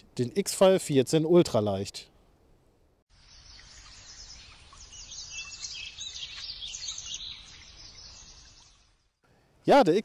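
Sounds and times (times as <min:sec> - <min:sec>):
faint outdoor background noise: 0:00.0 - 0:10.0
birds chirping: 0:03.1 - 0:09.5.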